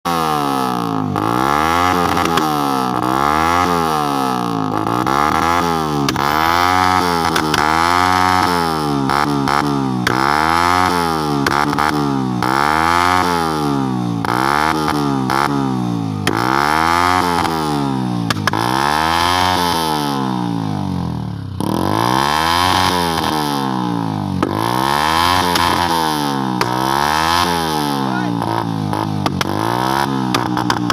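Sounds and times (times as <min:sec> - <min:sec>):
car engine revving: 0:00.4 - 0:20.6, 0:21.5 - 0:30.9
sharp exhaust pops: 0:01.9 - 0:03.1, 0:04.6 - 0:12.0, 0:16.1 - 0:17.6, 0:18.2 - 0:18.9, 0:24.3 - 0:27.0, 0:28.4 - 0:30.9.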